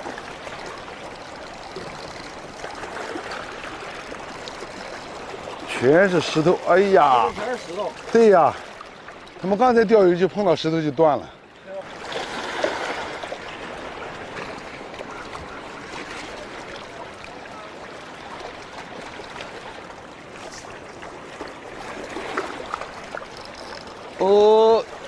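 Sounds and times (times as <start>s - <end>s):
splashing trickling water: 20.4s - 25.0s.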